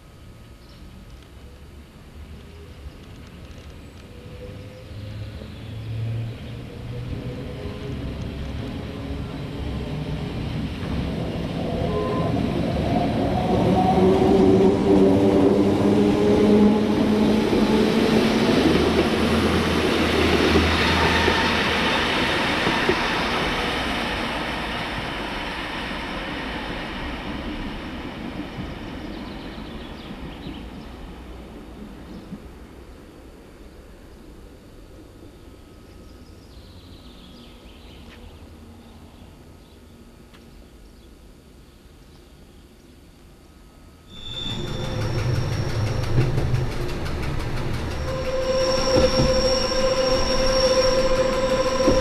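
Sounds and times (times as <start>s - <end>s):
electric train passing: 4.2s - 36.3s, 43.7s - 52.0s
train motor humming tones: 7.1s - 25.2s, 44.2s - 52.0s.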